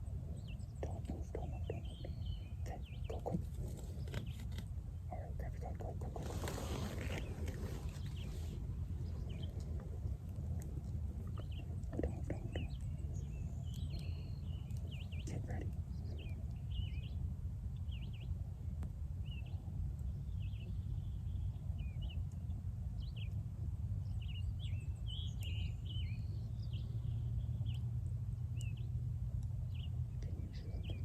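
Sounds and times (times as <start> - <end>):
birds chirping: 0.0 - 17.2, 24.0 - 29.0, 29.6 - 31.0
steady low rumble: 0.0 - 31.0.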